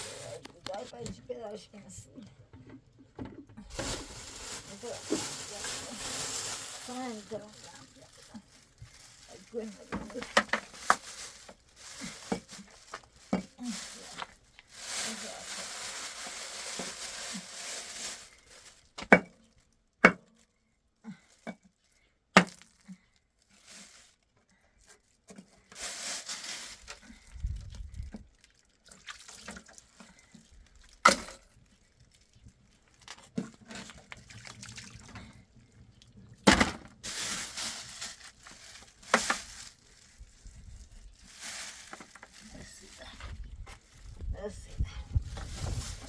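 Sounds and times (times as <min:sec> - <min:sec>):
rustling noise: 0:00.0 - 0:01.0, 0:03.6 - 0:18.9, 0:25.6 - 0:28.4, 0:37.0 - 0:46.0.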